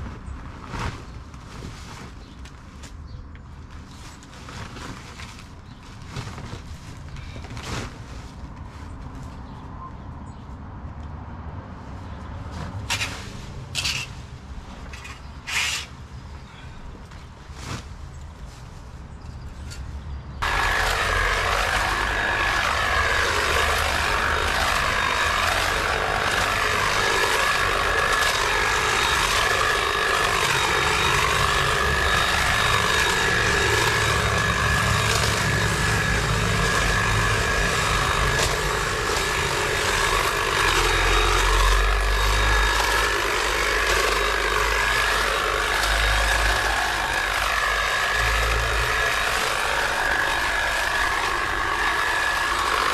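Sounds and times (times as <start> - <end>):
machine running with high whine: 20.4 - 52.9.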